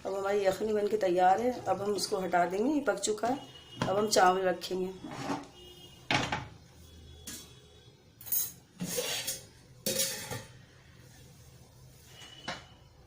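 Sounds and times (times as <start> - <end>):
metal pots clanking: 8.2 - 10.6.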